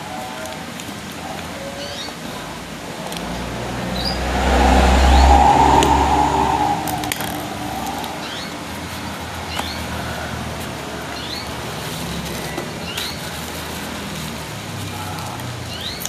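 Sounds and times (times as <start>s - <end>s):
traffic noise: 0.0s - 16.0s
vehicle passing by: 2.4s - 9.5s.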